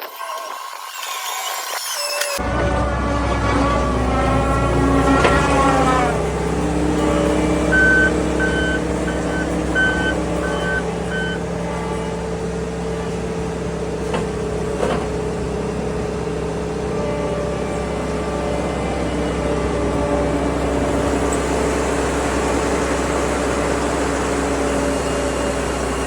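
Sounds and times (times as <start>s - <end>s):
diesel engine running: 2.4s - 26.0s
backup alarm beeping: 7.3s - 11.5s.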